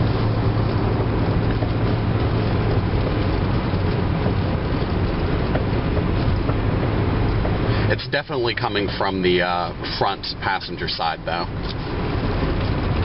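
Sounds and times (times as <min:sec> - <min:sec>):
car cabin road and engine drone: 0:00.0 - 0:13.0.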